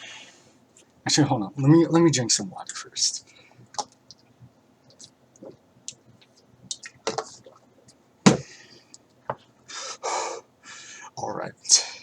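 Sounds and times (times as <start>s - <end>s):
loud thump: 8.2s - 8.5s.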